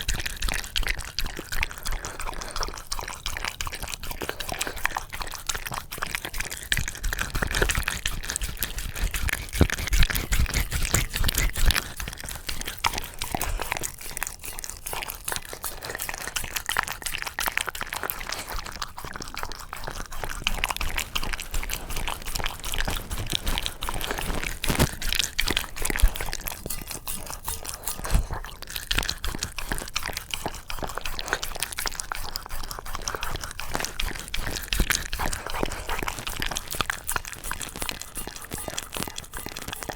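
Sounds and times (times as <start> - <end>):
dog eating from bowl: 0.0 - 39.9.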